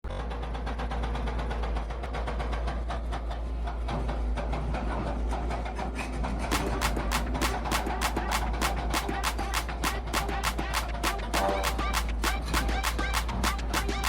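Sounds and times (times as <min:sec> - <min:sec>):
diesel engine rumble and clatter: 0:00.0 - 0:14.0
music beat: 0:06.5 - 0:14.0.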